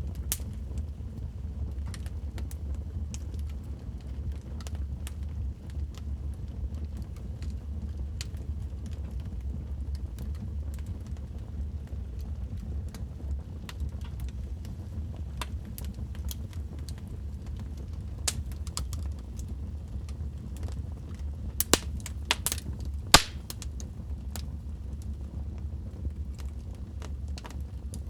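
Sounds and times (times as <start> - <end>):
low rumble of flames: 0.0 - 28.0
fire popping and snapping: 9.9 - 28.0.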